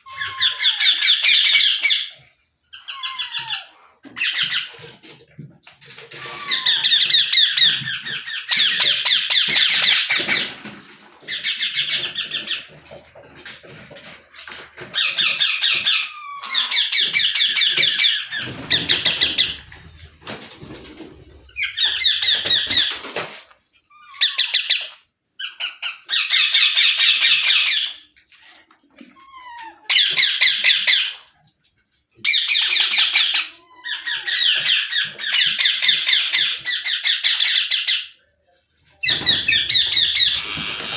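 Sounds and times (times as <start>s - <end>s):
parakeet falling squeaks: 0.0s - 1.9s, 14.9s - 23.2s, 39.0s - 40.9s
parakeet harsh chattering: 15.0s - 20.2s, 20.9s - 23.0s, 39.0s - 40.9s.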